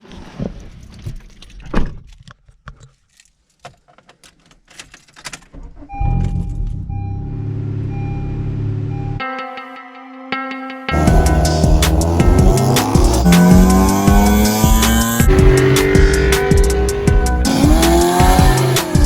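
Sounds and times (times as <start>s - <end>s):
repeating beep: 5.9s - 9.2s
car engine idling: 10.9s - 19.0s.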